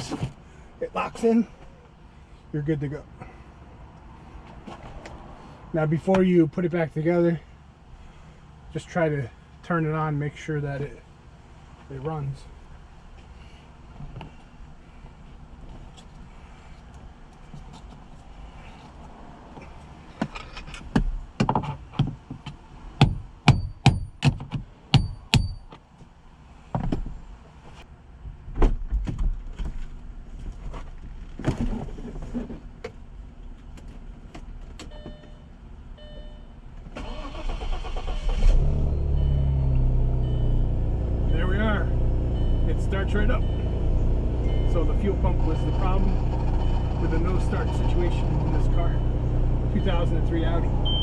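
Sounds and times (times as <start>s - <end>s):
sharp knocks and clicks: 20.2s - 25.8s
short beeps: 34.9s - 36.5s, 42.4s - 45.2s, 49.8s - 51.0s
car engine cranking and starting: 36.9s - 51.0s.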